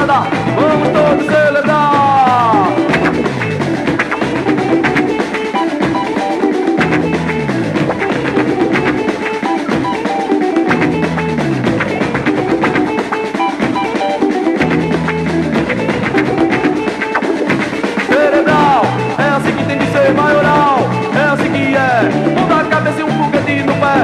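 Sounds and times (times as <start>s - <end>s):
falling bass figure: 0.0s - 5.2s, 5.8s - 9.1s, 18.4s - 24.0s
electric guitar: 0.0s - 24.0s
steady drum beat: 0.0s - 24.0s.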